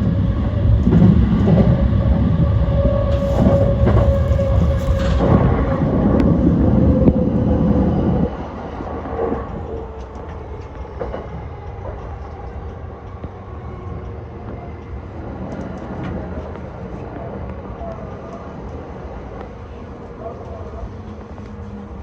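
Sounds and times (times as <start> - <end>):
electric train rumbling on rails: 0.0 - 22.0.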